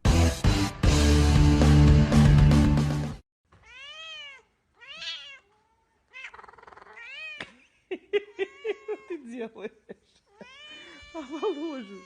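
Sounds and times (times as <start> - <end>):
background music: 0.0 - 3.2
cat meowing: 3.6 - 7.5, 10.3 - 12.0.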